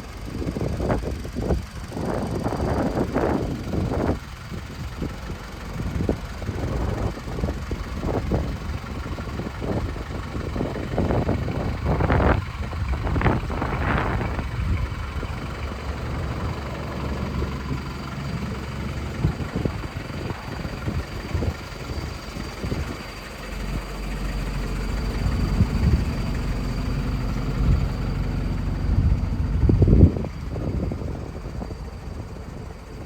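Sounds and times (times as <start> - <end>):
diesel truck engine idling: 0.0 - 33.0.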